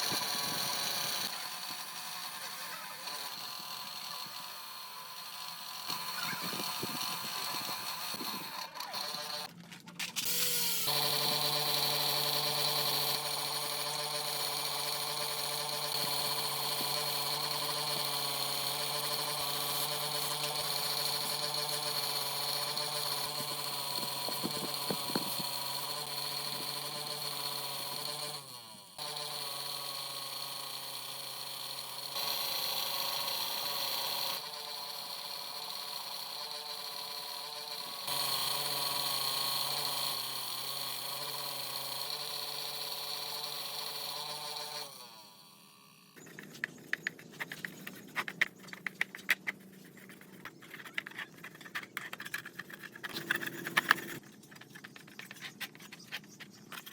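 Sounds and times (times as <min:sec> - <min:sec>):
power tool humming: 0:00.0 - 0:56.9.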